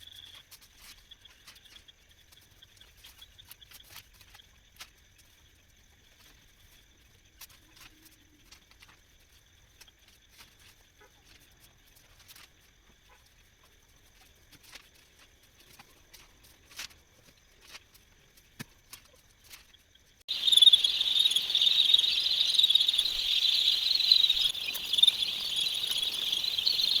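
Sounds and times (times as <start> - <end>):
chicks peeping: 20.3 - 27.0.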